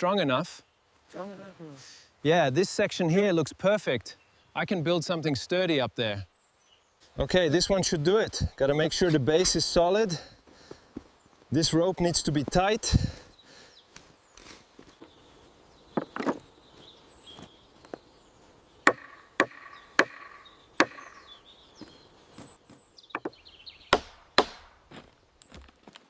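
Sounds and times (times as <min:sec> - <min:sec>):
tool chopping into wood: 0:18.9 - 0:21.1, 0:23.2 - 0:24.8.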